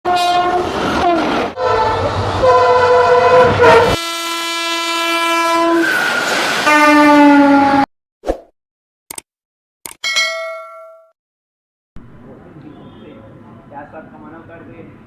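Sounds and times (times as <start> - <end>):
train horn blasts: 0.1 - 7.9.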